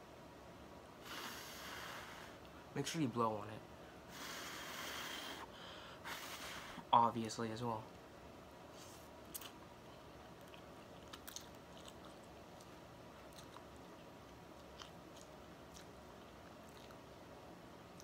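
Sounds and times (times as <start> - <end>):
faint chewing noodles: 8.8 - 18.0.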